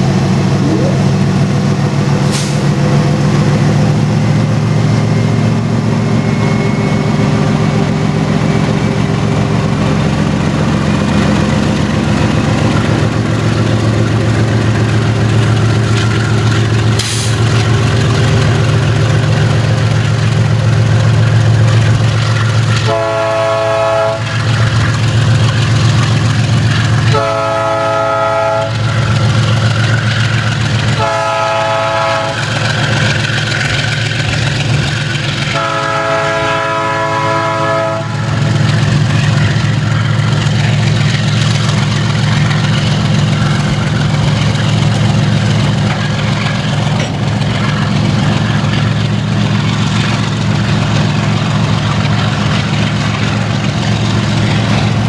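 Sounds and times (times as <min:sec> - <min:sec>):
train wheels rumbling on rail: 0:00.0 - 0:55.0
locomotive air horn blasts: 0:22.8 - 0:24.3, 0:27.1 - 0:28.8, 0:31.0 - 0:32.5, 0:35.5 - 0:38.3.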